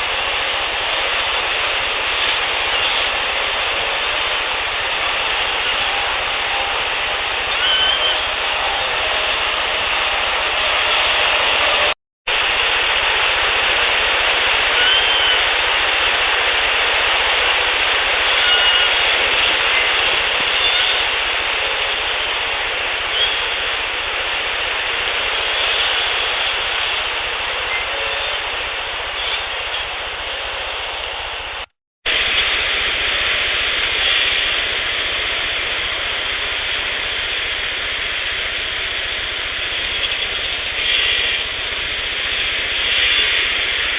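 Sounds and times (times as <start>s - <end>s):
steady hiss: 0.0s - 43.9s
faint whistle-like tones: 7.5s - 9.3s, 14.8s - 15.5s, 18.4s - 21.1s, 23.1s - 23.6s, 27.6s - 28.5s.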